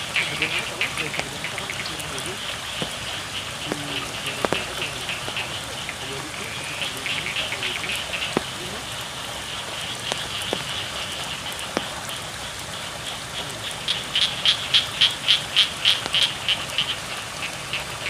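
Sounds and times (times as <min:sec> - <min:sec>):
frog croaking rapidly: 0:00.0 - 0:18.0
frogs calling: 0:00.0 - 0:18.0
rain hissing: 0:00.0 - 0:18.0.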